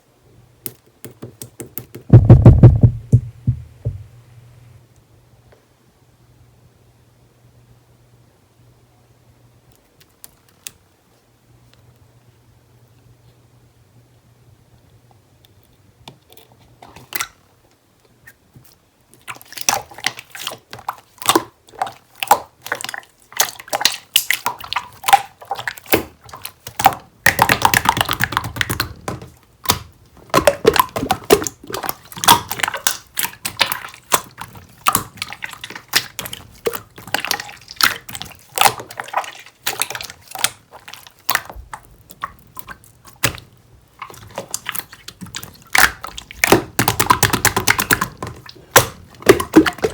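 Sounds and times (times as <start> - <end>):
slime squishing by hand: 1.1 - 4.0, 18.2 - 49.9.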